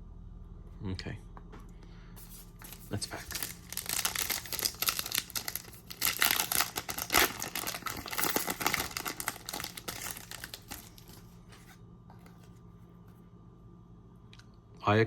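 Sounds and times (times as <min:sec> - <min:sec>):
wrapper tearing and crinkling: 0:02.2 - 0:11.3.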